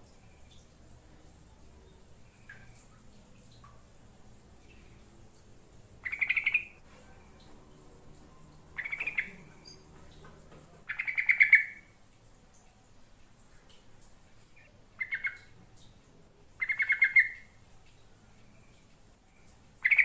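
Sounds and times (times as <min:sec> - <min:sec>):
bulbul chattering call: 0:06.0 - 0:06.8, 0:08.8 - 0:09.8, 0:10.9 - 0:11.8.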